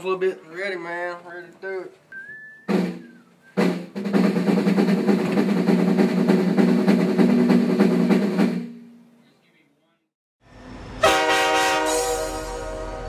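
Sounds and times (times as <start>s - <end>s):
fast drum roll: 2.7s - 8.9s.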